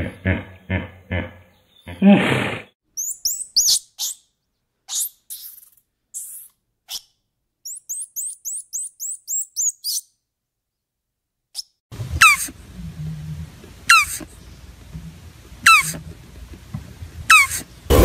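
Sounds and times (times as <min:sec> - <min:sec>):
monkey chirping: 0:03.0 - 0:04.3, 0:04.9 - 0:10.1, 0:15.7 - 0:16.0, 0:17.3 - 0:18.0.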